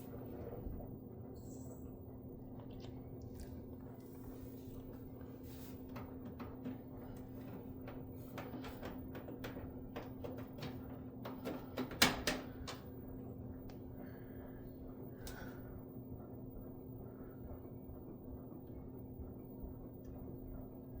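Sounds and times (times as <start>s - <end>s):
washing machine motor hum: 0.0s - 21.0s
light clicks and knocks: 4.9s - 12.9s.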